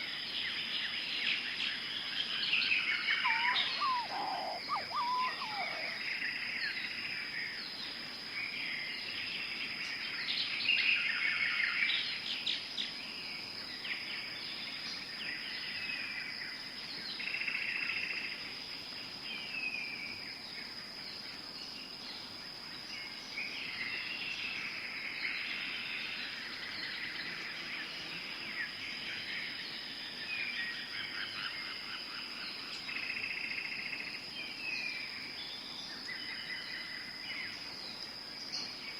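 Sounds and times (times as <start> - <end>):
birds calling and chirping: 2.1 - 6.9
high-pitched insect drone: 3.0 - 6.1.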